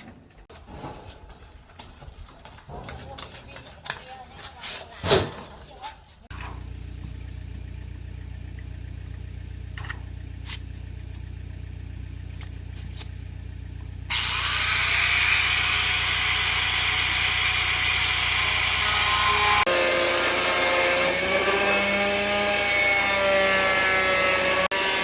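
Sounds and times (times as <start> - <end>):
low motor hum: 6.3 - 25.0
power tool whining: 13.8 - 25.0.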